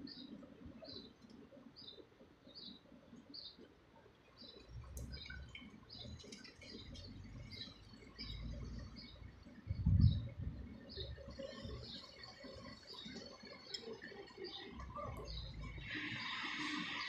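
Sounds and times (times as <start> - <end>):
other birds chirping: 0.0 - 17.0
low rumble: 9.6 - 11.2.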